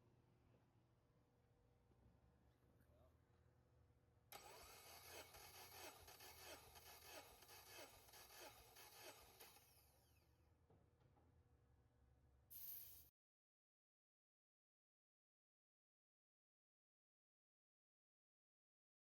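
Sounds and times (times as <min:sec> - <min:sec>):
engine cranking on starter: 0:04.3 - 0:09.7.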